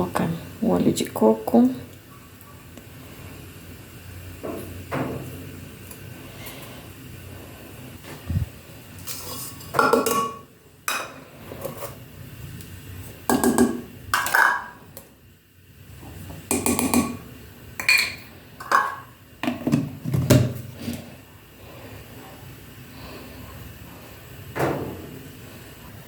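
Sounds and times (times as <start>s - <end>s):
utensils clinking against dishes: 9.0s - 12.0s, 17.8s - 19.1s.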